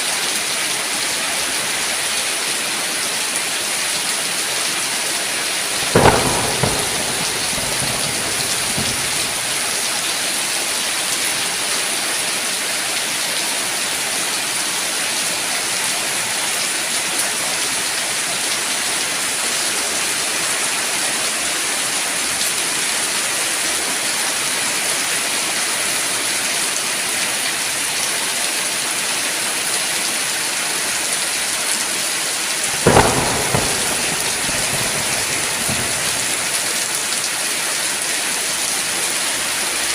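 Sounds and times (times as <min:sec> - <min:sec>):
heavy rain hissing: 0:02.7 - 0:10.5, 0:32.5 - 0:39.8
thunder cracks: 0:05.7 - 0:10.0, 0:32.6 - 0:37.2.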